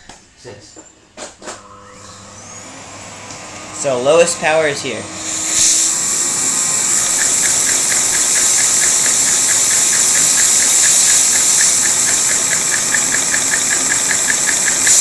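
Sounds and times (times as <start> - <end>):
vacuum cleaner whining: 1.4 - 15.0
toy engine clicking rhythmically: 5.3 - 15.0.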